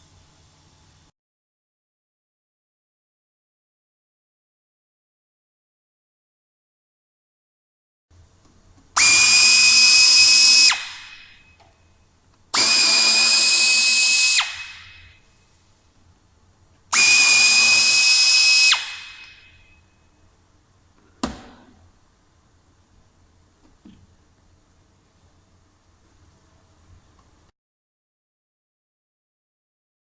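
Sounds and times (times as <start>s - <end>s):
drill-driver whining: 9.0s - 11.0s, 12.6s - 14.9s, 17.0s - 19.3s.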